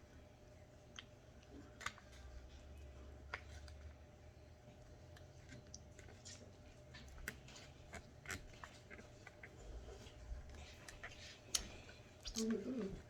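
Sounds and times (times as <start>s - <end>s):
chewing and utensil clicks: 10.5s - 13.0s.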